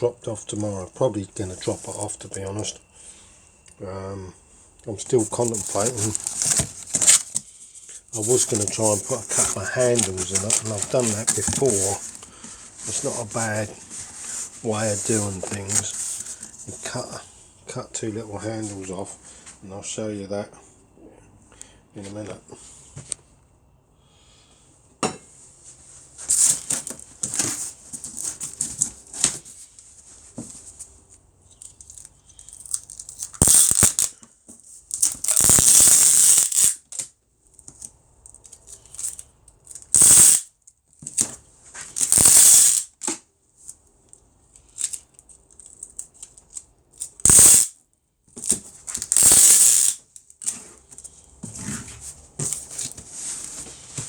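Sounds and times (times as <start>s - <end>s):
packing tape screeching off roll: 5.2s - 7.4s, 8.2s - 12.3s, 26.3s - 28.8s, 31.8s - 34.2s, 34.9s - 37.0s, 39.8s - 40.5s, 42.0s - 43.0s, 47.1s - 47.8s, 48.4s - 50.0s
cardboard rustling and knocking: 5.4s - 7.4s, 8.2s - 12.5s.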